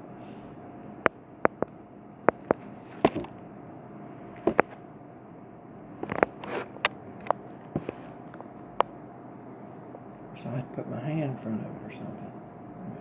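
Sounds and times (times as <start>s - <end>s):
faint hum: 0.0s - 13.0s
sharp clicks and taps: 1.5s - 3.4s, 4.5s - 4.8s.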